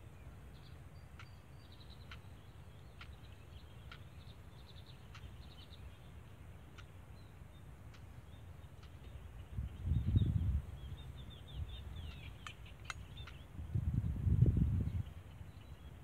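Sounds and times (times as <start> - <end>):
faint bird chirping: 0.0 - 16.0
sharp tick: 1.0 - 5.8, 6.7 - 7.0, 7.9 - 8.1, 8.7 - 9.2, 12.0 - 13.4.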